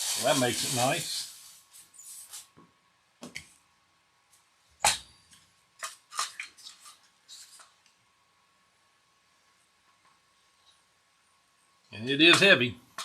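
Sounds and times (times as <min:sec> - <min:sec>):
packaging rustling: 0:00.0 - 0:02.5.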